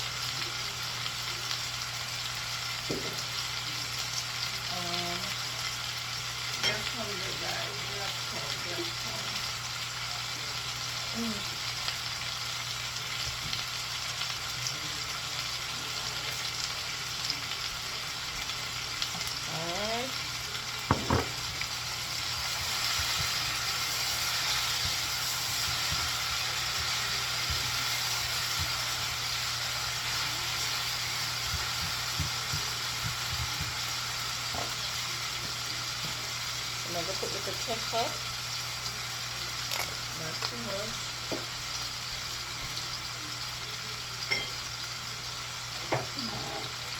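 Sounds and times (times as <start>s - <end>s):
vegetables sizzling in hot oil: 0.0s - 46.9s
utensil knocking against pot: 20.9s - 21.4s.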